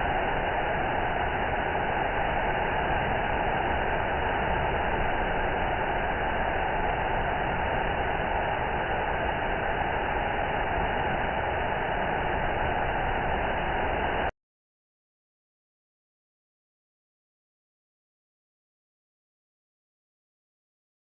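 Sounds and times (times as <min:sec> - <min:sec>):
waterfall rushing: 0:00.0 - 0:14.3.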